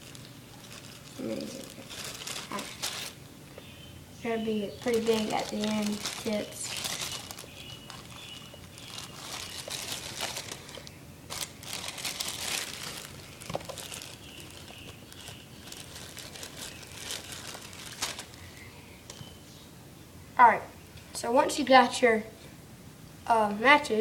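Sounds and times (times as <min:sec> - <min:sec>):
crinkling and rustling: 0:00.0 - 0:03.7, 0:04.4 - 0:19.4.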